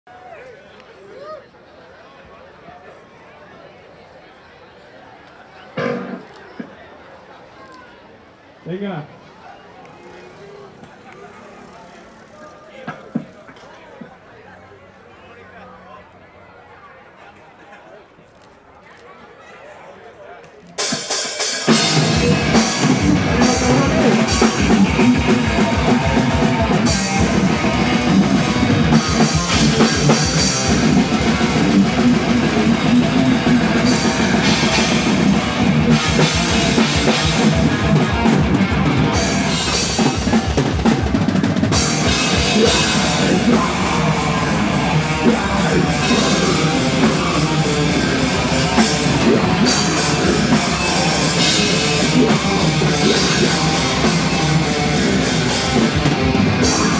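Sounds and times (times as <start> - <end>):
heavy metal band playing live: 5.8 - 6.2, 20.8 - 56.9
distorted electric guitar: 5.8 - 6.4, 20.8 - 56.9
fast drum beat: 20.8 - 56.9.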